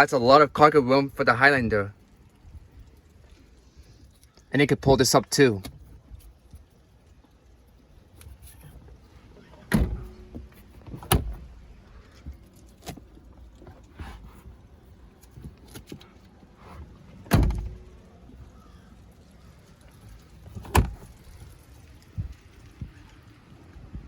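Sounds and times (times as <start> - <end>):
car doors thunking shut: 9.5 - 11.6, 16.6 - 18.0, 20.5 - 21.2.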